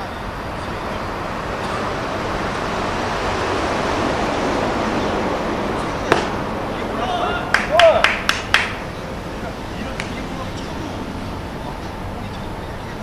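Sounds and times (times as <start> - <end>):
wind on microphone: 0.0 - 13.0
sharp crack: 6.0 - 6.8.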